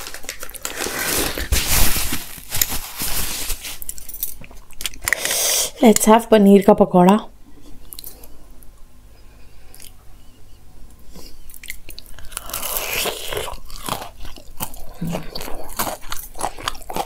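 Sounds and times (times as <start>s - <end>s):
crunching and chewing fried food: 0.0s - 1.6s, 11.2s - 17.0s.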